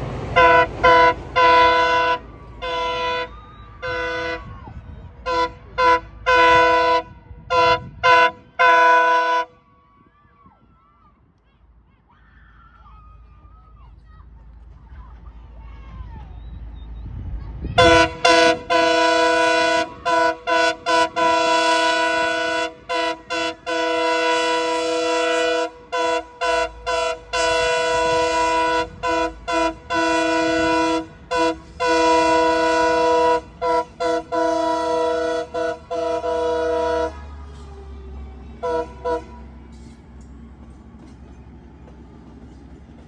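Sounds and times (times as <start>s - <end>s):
train horn blasts: 0.0s - 4.5s, 5.2s - 9.6s, 17.8s - 37.7s, 38.5s - 40.0s.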